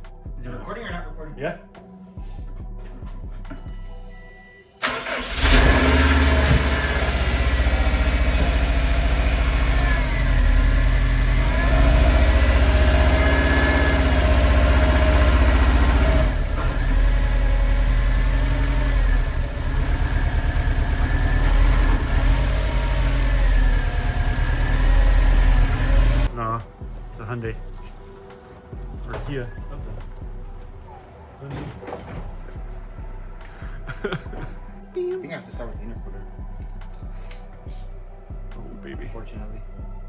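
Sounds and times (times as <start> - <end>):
car engine cranking and starting: 4.7 - 26.4
car engine idling: 4.8 - 26.4.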